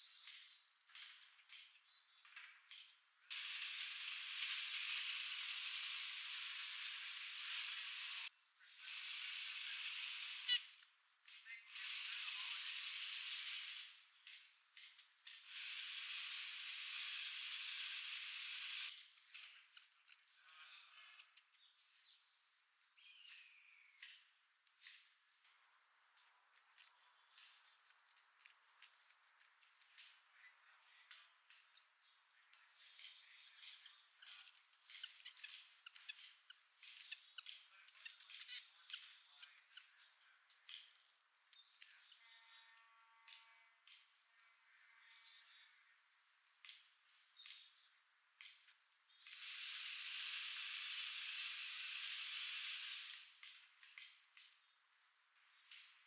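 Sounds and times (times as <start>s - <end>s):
small birds high thin calls: 3.3s - 10.8s, 11.6s - 14.4s, 15.5s - 18.9s, 32.8s - 40.3s, 49.0s - 53.2s
steady noise hiss: 3.3s - 14.2s, 15.4s - 19.2s, 48.8s - 56.0s.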